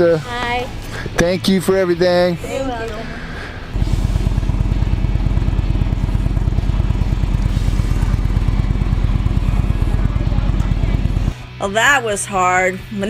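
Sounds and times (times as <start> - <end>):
motorcycle engine running: 3.1 - 12.5.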